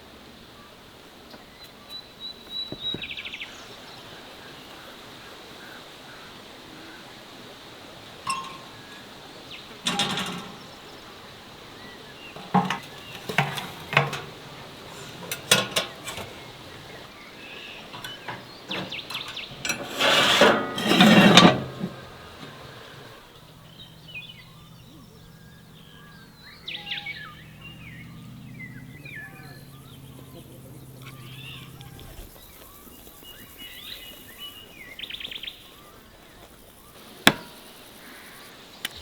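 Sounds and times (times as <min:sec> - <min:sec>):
dishes and utensils clinking: 0:08.3 - 0:23.2.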